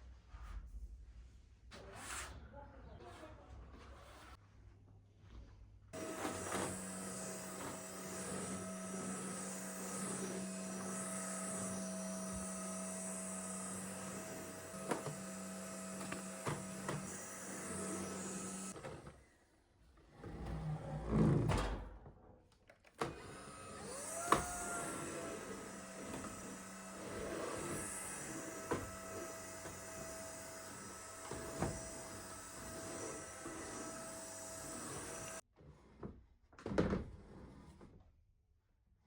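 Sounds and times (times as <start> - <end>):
electric motor humming: 6.0 - 18.8, 23.3 - 35.4.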